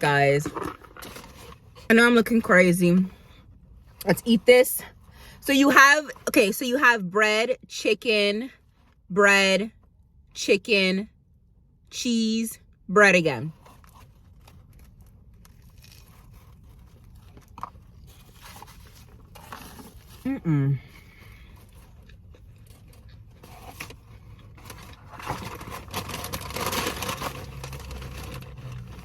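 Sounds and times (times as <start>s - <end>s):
rustling wrapper: 13.6s - 20.3s, 21.0s - 29.0s
crunchy chewing: 13.7s - 20.3s, 20.9s - 29.0s.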